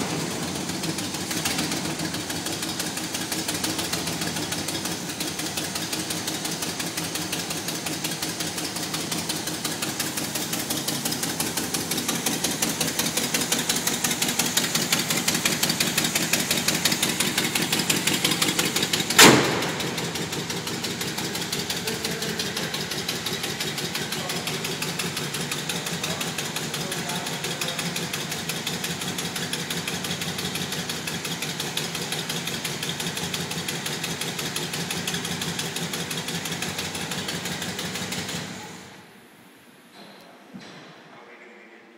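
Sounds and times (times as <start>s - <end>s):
car engine idling: 0.0s - 39.9s
car hood slammed shut: 19.1s - 20.2s.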